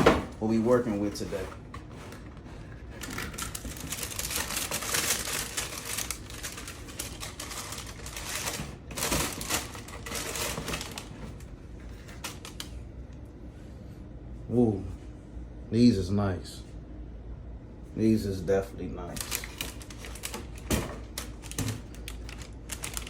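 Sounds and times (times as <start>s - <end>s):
packaging rustling and crinkling: 0.0s - 12.8s, 19.1s - 23.0s.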